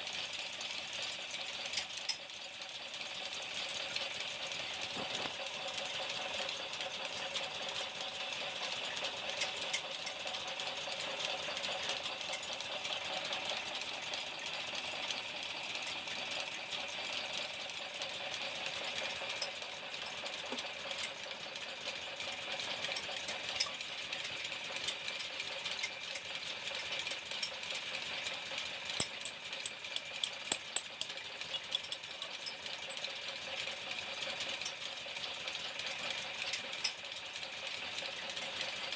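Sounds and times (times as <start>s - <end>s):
workshop machinery whirring: 3.4s - 35.2s
sharp ticks: 28.7s - 32.6s.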